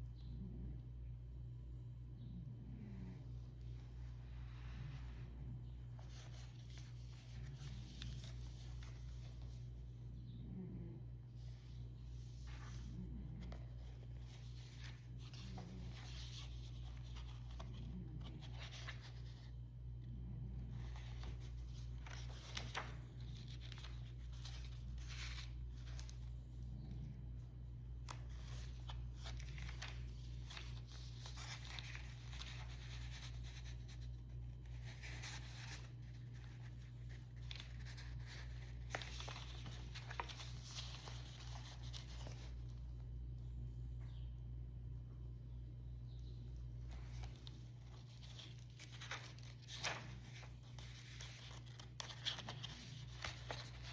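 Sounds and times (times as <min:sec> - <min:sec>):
steady low hum: 0:00.0 - 0:53.9
paper pages rustling: 0:05.8 - 0:10.1, 0:11.4 - 0:19.8, 0:20.6 - 0:43.0, 0:46.7 - 0:53.9.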